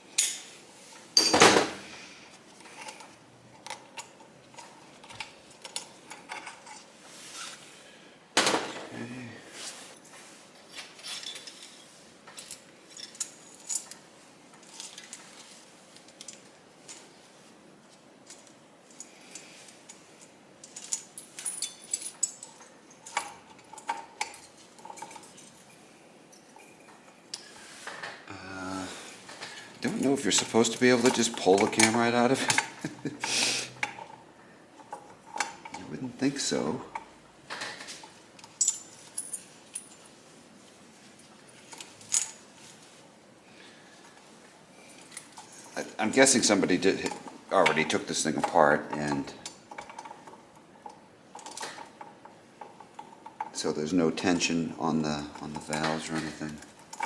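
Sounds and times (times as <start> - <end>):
metal tools clinking and tapping: 0.2 - 1.8, 2.6 - 7.0, 10.6 - 17.1, 18.2 - 28.1, 29.3 - 33.0, 34.8 - 40.1, 44.9 - 53.6, 55.2 - 57.0.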